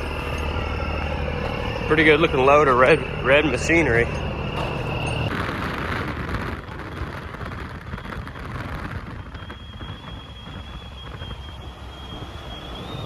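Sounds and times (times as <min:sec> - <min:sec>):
truck engine hum: 0:00.0 - 0:05.3, 0:09.6 - 0:13.0
road and wind noise: 0:00.0 - 0:13.0.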